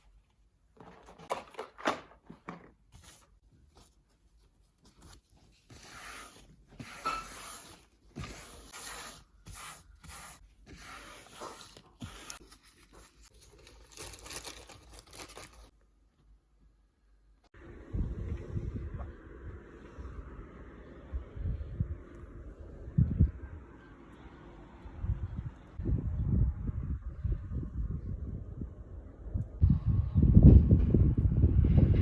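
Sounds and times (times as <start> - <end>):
material rustling and tearing: 9.8 - 15.7.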